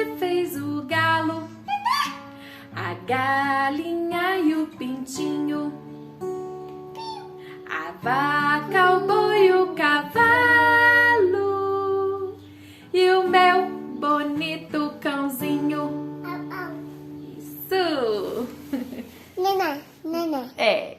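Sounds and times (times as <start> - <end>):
acoustic guitar: 0.0 - 20.7
child singing: 7.0 - 12.3, 14.6 - 16.9.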